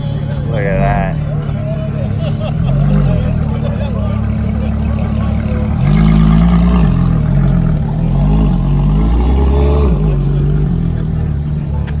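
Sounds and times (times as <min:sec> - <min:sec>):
sports car engine revving: 0:02.5 - 0:12.0.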